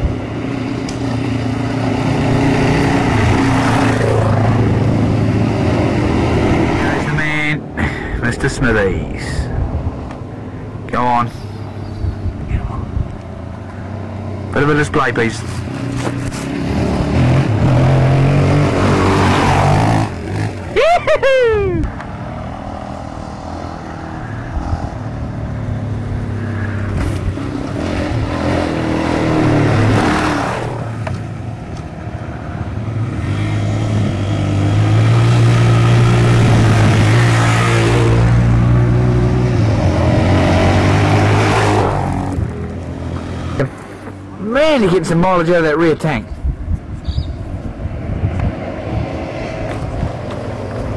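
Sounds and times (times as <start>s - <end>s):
dirt bike engine revving: 0.0s - 8.0s, 14.0s - 20.8s, 24.6s - 31.1s, 32.8s - 44.0s.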